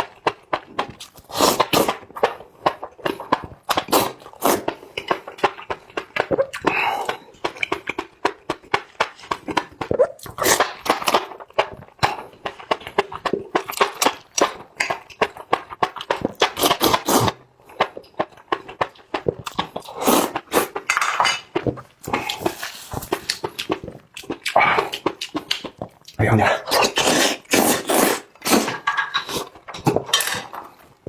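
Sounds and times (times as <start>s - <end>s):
person chewing and smacking food: 0.0s - 31.0s
wet mouth clicks: 22.0s - 29.5s.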